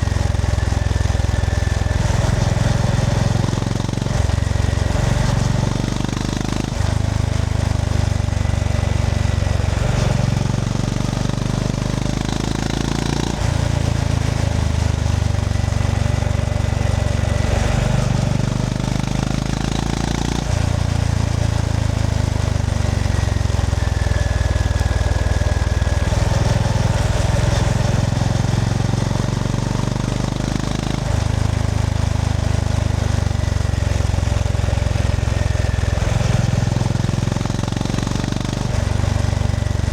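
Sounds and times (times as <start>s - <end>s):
single-cylinder engine running: 0.0s - 39.9s.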